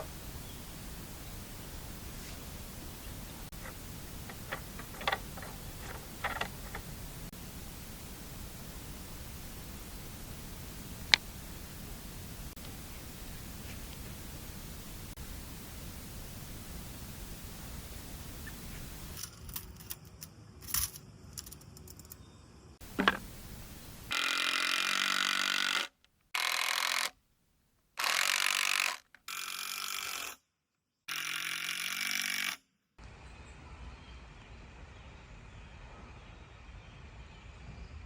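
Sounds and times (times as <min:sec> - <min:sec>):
power tool running in bursts: 0:24.0 - 0:27.1.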